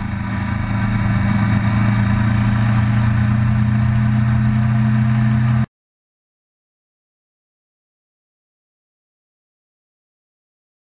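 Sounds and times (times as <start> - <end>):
road and wind noise: 0.0 - 5.7
vehicle engine droning: 0.0 - 5.7.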